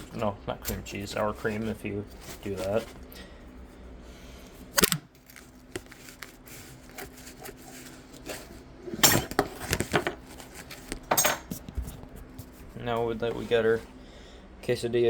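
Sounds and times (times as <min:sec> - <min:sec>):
faint steady hum: 0:00.0 - 0:15.0
dishes clattering and scraping: 0:08.2 - 0:10.2, 0:11.0 - 0:11.6.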